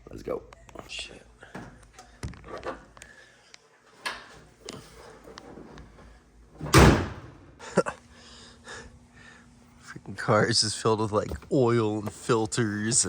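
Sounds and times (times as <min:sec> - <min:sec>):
car door thud: 0:06.6 - 0:07.4.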